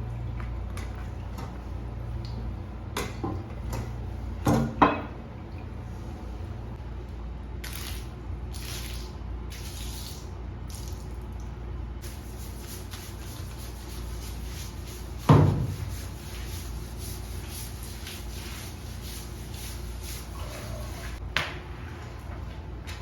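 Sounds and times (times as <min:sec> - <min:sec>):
water splashing in a sink: 0:07.6 - 0:23.0.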